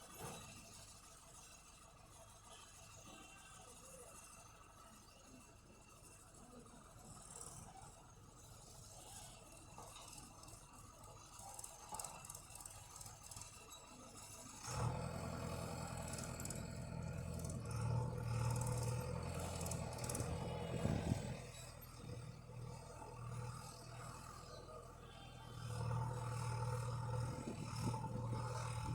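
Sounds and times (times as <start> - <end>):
faint rattling and scraping: 0.0 - 28.9
tractor diesel engine droning: 14.6 - 28.9.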